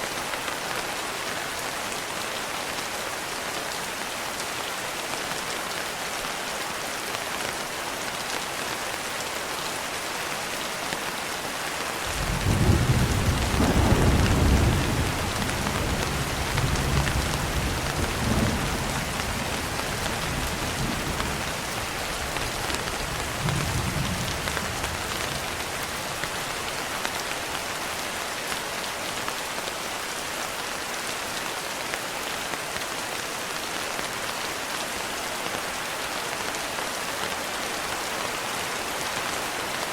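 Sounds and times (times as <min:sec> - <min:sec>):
steady rain: 0:00.0 - 0:39.9
thunder rolling: 0:12.2 - 0:19.0.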